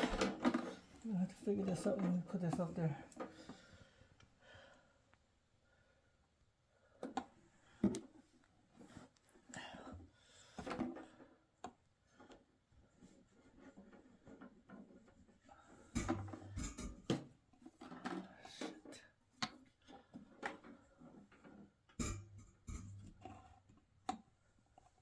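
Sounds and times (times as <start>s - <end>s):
clatter of parts being handled: 0.0s - 0.9s.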